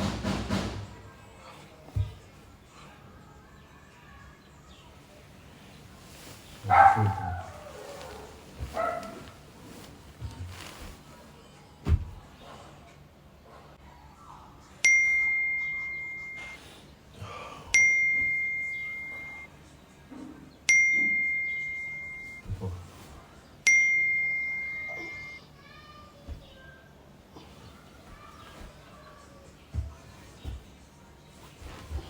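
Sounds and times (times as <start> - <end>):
dull thump: 11.8 - 12.3
phone chime dinging: 14.8 - 16.6, 17.7 - 19.5, 20.7 - 22.4, 23.7 - 25.4.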